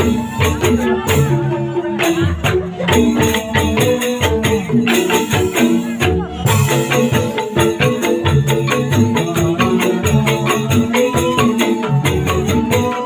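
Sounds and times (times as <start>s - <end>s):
hand percussion: 0.0s - 13.0s.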